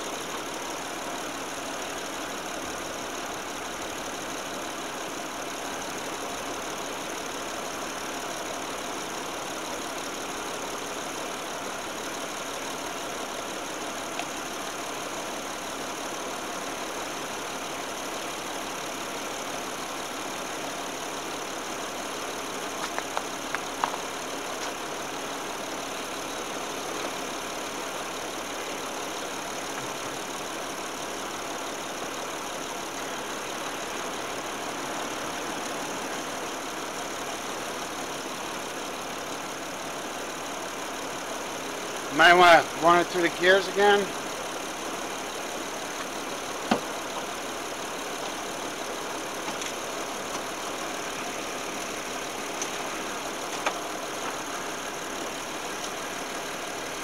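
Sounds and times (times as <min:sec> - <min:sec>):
car engine idling: 0:00.0 - 0:57.0
tools clicking in engine bay: 0:49.4 - 0:50.6, 0:53.4 - 0:54.6.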